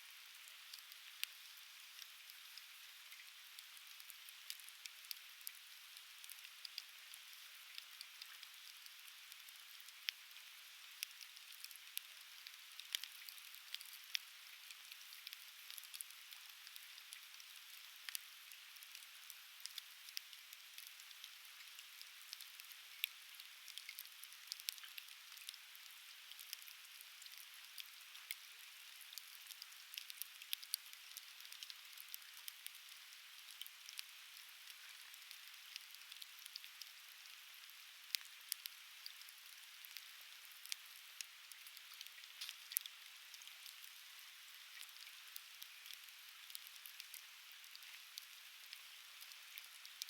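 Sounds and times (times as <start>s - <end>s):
firewood crackling and popping: 11.0s - 18.2s, 29.1s - 32.8s, 38.1s - 43.9s, 44.7s - 50.0s.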